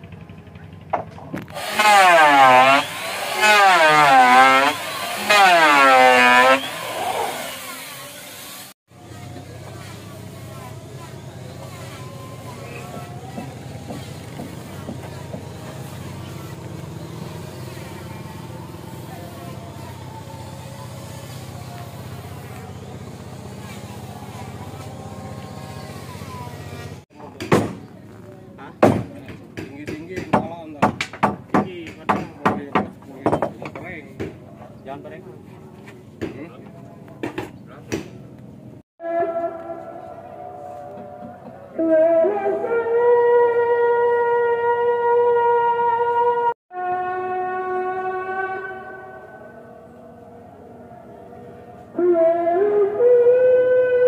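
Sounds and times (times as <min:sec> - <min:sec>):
small engine revving: 0:01.4 - 0:27.1.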